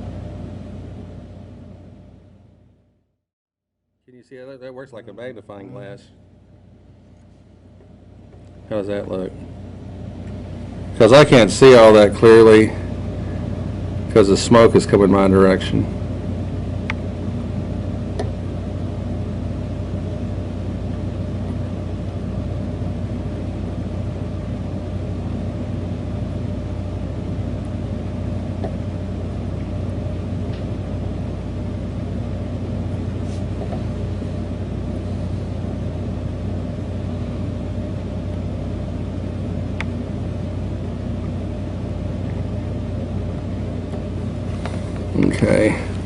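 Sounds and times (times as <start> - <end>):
steady low hum: 0.0 - 3.2, 4.0 - 46.0.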